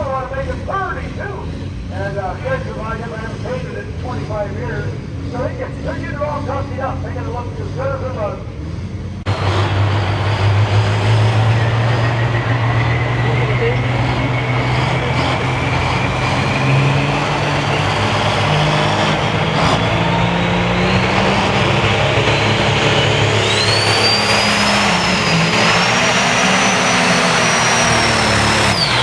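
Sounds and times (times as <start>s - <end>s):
diesel engine running loud: 0.0s - 29.0s
turbocharger whistle: 9.3s - 29.0s.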